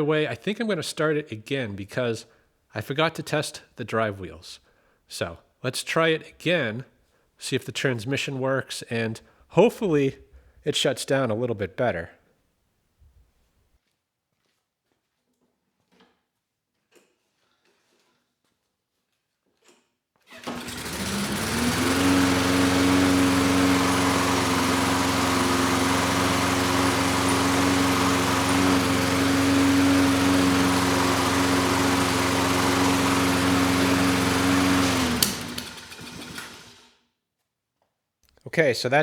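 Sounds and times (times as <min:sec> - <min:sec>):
lawn mower engine running: 0:20.3 - 0:36.9.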